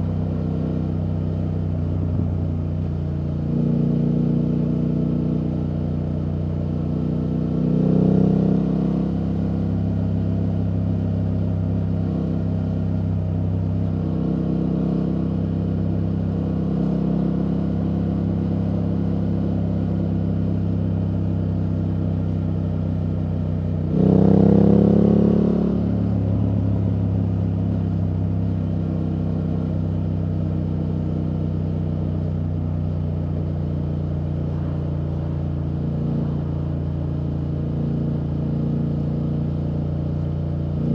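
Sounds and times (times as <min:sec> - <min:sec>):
motorcycle engine revving: 0:21.4 - 0:40.9.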